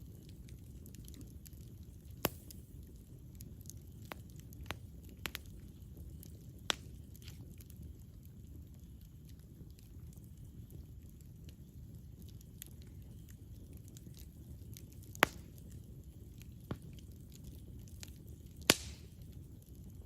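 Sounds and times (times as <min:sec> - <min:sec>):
campfire rumbling and crackling: 0:00.0 - 0:20.0
sharp fire pops: 0:00.6 - 0:08.0, 0:12.5 - 0:19.8.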